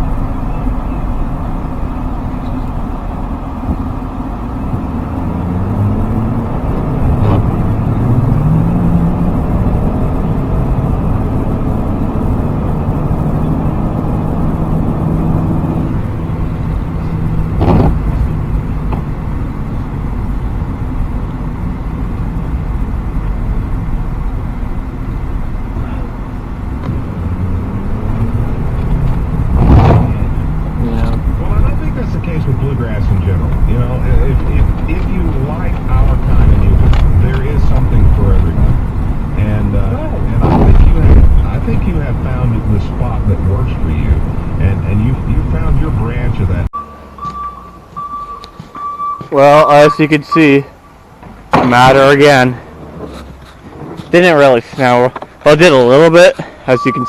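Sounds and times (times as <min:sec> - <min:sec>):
diesel truck engine accelerating: 0:00.0 - 0:57.0
sharp knocks: 0:17.6 - 0:18.0.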